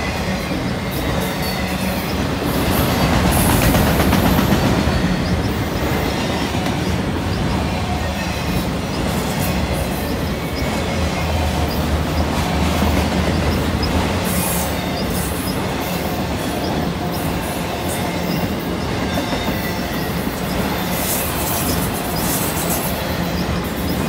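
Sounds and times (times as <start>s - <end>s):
freight train wheels rumbling: 0.0s - 24.0s
wheel squeal: 0.0s - 24.0s.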